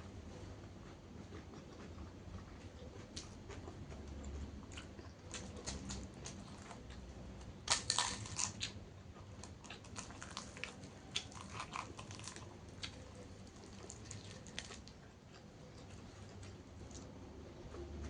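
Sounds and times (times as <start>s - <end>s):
person chewing crunchy food: 0.3s - 17.1s.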